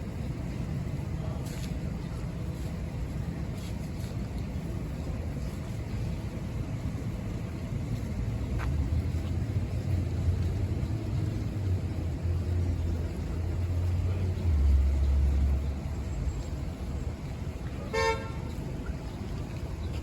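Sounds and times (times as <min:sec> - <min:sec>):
low rumble of street traffic: 0:00.0 - 0:20.0
short car horn toot: 0:17.9 - 0:18.4.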